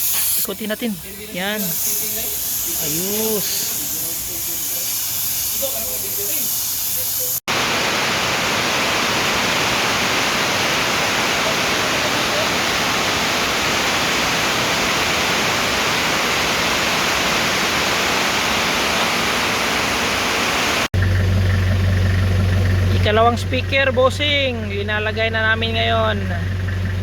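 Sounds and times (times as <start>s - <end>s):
loud hiss-like rushing noise: 1.3s - 20.9s.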